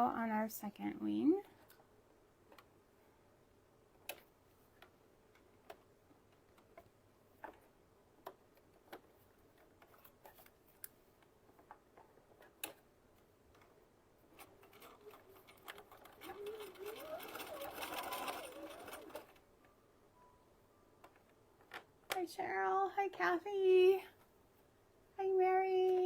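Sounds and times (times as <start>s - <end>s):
faint clicks and taps from sewing: 1.4s - 2.8s, 3.9s - 19.8s.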